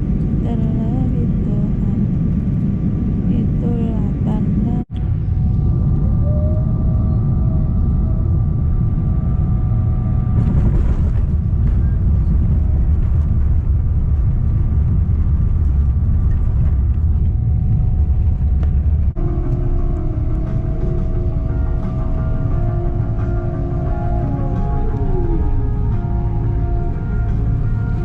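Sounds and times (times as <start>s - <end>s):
vehicle interior rumble: 0.0s - 28.0s
music: 19.1s - 28.0s.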